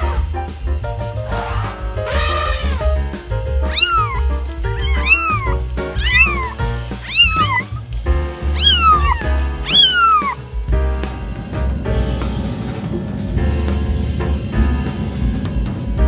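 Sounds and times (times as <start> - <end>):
kitten meowing: 3.7 - 7.9, 8.5 - 10.4.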